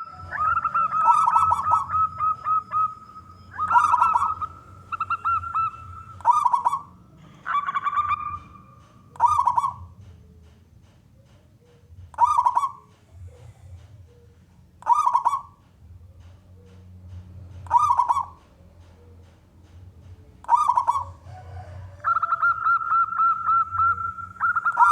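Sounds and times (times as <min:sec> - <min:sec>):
dove cooing: 0:00.0 - 0:10.0, 0:12.2 - 0:15.6, 0:17.6 - 0:19.2, 0:20.4 - 0:24.9.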